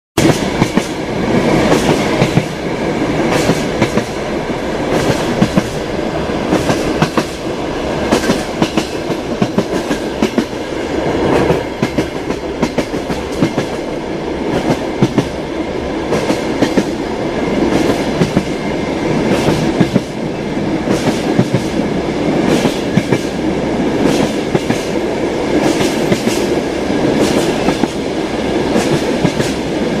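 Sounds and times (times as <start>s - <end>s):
train wheels rumbling on track: 0.2s - 30.0s.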